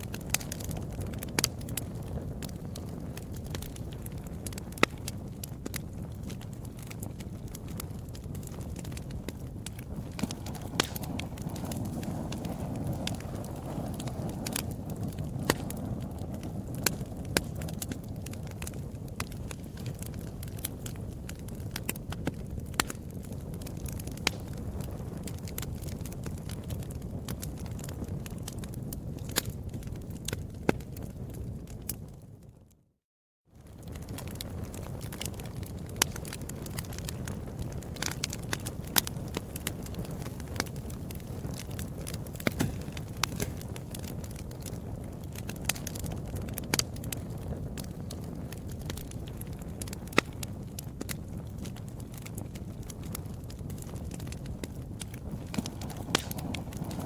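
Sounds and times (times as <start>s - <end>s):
fire crackles and pops: 0.0s - 32.9s, 33.5s - 57.0s
fire low rumble: 0.0s - 57.0s.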